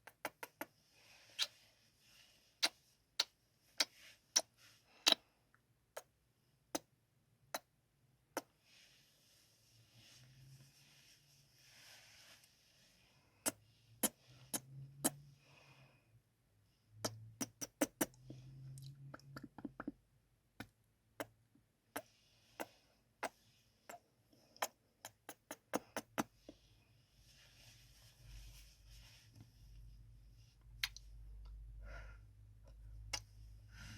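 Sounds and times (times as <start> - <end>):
kissing lip smacks: 0.0 - 0.7, 1.4 - 1.6, 2.6 - 5.2, 13.4 - 15.2, 17.0 - 18.2, 24.6 - 26.3, 30.8 - 31.0.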